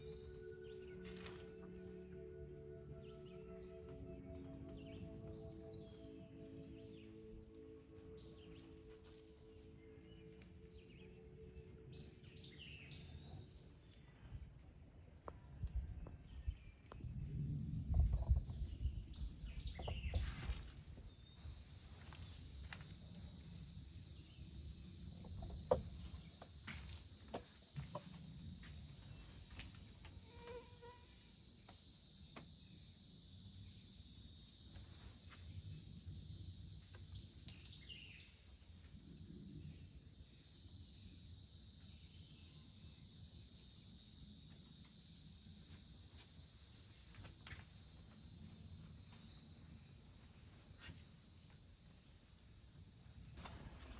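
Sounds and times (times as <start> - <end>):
high insect-like hum: 0.0 - 14.1, 17.2 - 53.9
bird chirp: 0.0 - 22.3
low rumble: 12.6 - 26.0.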